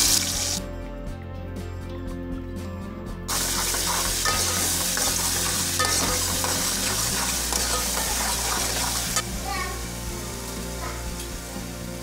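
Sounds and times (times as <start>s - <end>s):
spoon scraping a metal pot: 3.3s - 9.2s
paste sizzling in hot oil: 3.3s - 12.0s.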